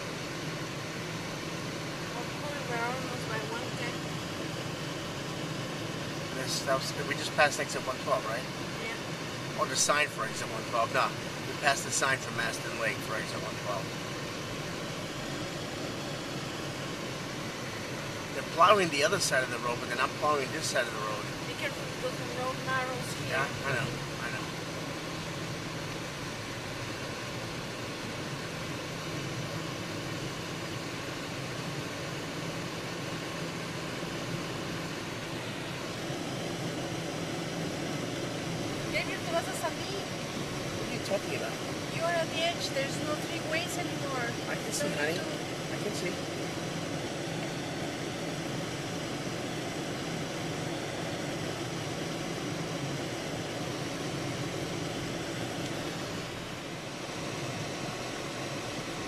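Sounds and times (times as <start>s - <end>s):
low engine hum: 0.0s - 59.0s
wind: 0.0s - 59.0s
tyres running on snowy road: 0.6s - 4.1s, 4.8s - 16.1s, 16.9s - 59.0s.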